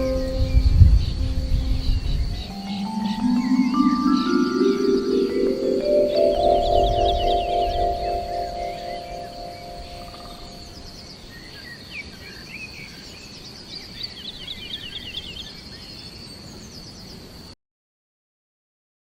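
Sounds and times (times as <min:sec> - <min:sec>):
mallet instrument chord: 0:00.0 - 0:10.8
small birds chirping and trilling: 0:00.0 - 0:17.5.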